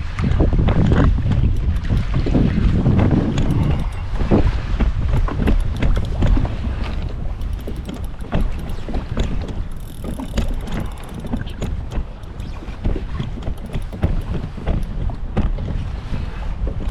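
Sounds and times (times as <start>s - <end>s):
water splashing against kayak: 0.0s - 16.9s
wind rumbling on microphone: 0.0s - 16.9s
short knocks: 5.4s - 15.6s.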